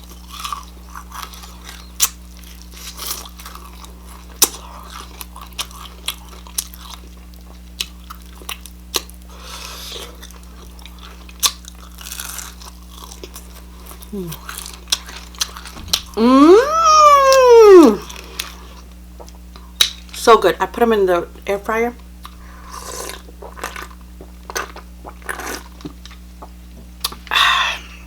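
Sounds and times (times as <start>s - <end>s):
crunching bites of fried chicken: 0.0s - 16.2s, 22.2s - 27.4s.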